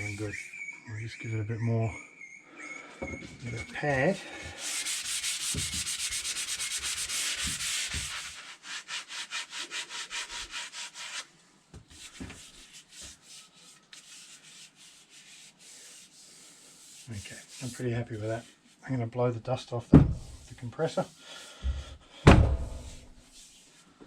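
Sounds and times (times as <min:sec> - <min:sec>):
sandpaper sanding wood by hand: 0:00.0 - 0:00.5, 0:03.4 - 0:11.3, 0:11.9 - 0:18.8, 0:22.7 - 0:23.9.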